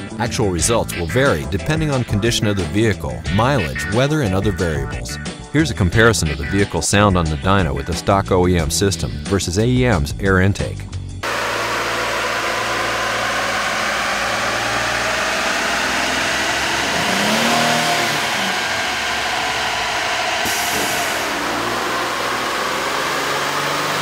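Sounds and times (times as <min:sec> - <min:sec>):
car engine drone: 0:11.2 - 0:24.0.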